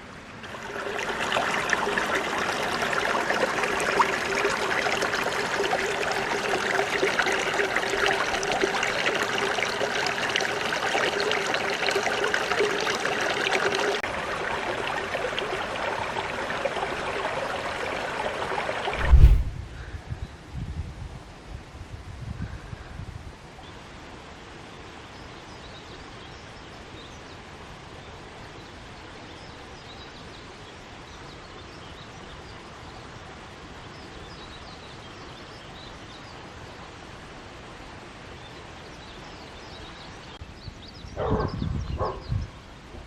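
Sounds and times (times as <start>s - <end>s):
dog barking: 41.2s - 42.3s.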